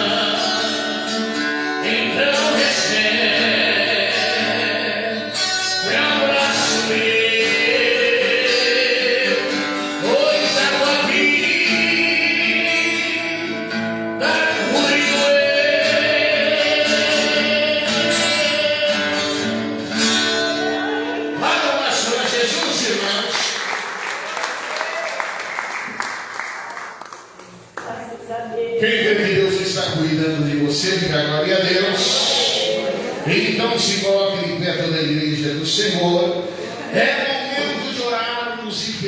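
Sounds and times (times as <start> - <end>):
plucked guitar: 0.0 - 22.8
gospel singing: 0.0 - 26.6, 28.8 - 39.0.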